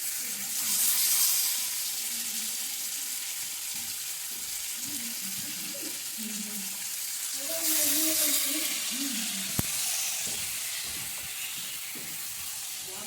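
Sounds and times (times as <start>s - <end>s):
steak sizzling in a frying pan: 0.0s - 13.0s.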